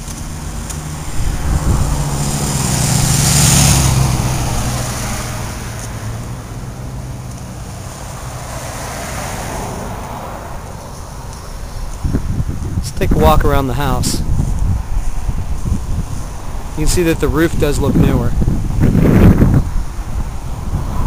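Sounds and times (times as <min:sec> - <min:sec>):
car driving past: 0:00.0 - 0:11.8.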